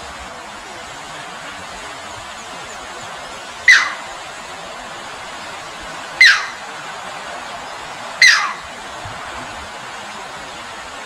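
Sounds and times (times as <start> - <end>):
shallow flowing water: 0.0 - 11.0
sharp bird calls: 3.6 - 4.2, 6.2 - 6.6, 8.2 - 8.7.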